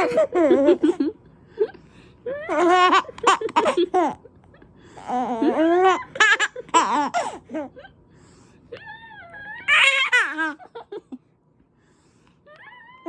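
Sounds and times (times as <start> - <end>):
baby laughing: 0.0 - 1.1, 2.4 - 4.2, 5.0 - 7.8, 9.5 - 10.8.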